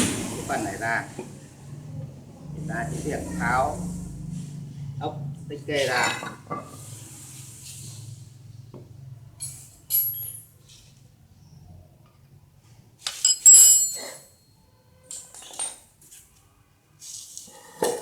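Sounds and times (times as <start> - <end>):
metal tools clinking: 9.4 - 10.5, 13.0 - 14.4, 15.1 - 15.9.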